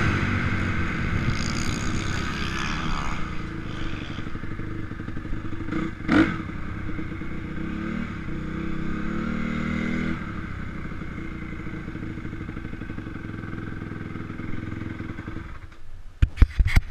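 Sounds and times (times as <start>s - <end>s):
motocross bike engine revving: 0.0s - 10.3s.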